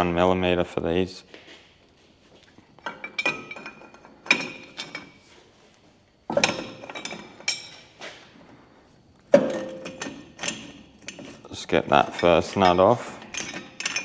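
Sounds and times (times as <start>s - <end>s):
steel tools clinking on metal: 6.3s - 7.8s, 9.3s - 14.0s.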